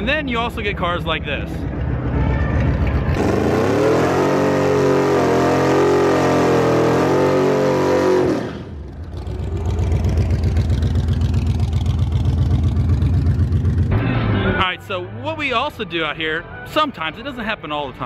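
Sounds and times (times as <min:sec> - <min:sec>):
big engine rumbling at low revs: 0:00.0 - 0:15.2
car engine revving high: 0:03.1 - 0:14.1.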